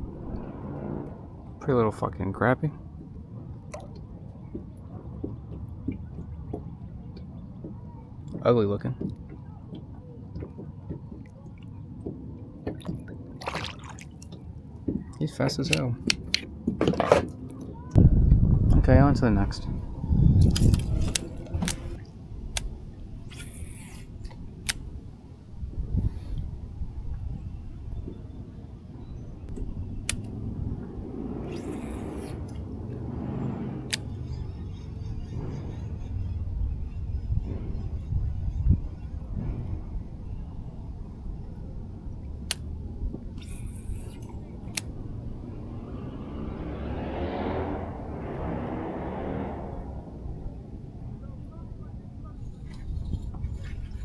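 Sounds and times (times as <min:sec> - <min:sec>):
wind rumbling on microphone: 0:00.0 - 0:54.0
fishing gear clicks and knocks: 0:09.0 - 0:17.8, 0:20.4 - 0:25.4
sharp clicks: 0:15.6 - 0:16.5, 0:20.4 - 0:25.0, 0:29.5 - 0:35.4, 0:42.2 - 0:46.7.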